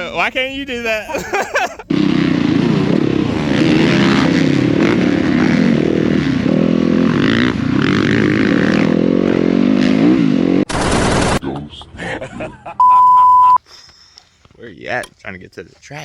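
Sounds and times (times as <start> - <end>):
motocross bike engine revving: 1.9 - 11.4.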